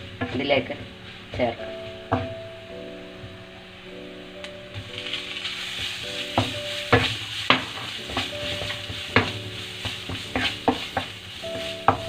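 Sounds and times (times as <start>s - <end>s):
food sizzling in a pan: 4.3s - 12.0s
utensil clacking against pan: 6.2s - 12.0s.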